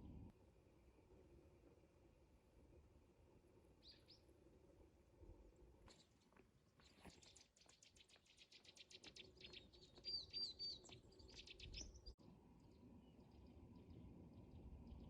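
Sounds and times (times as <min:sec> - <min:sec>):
high ticking bird calls: 0:06.8 - 0:12.1.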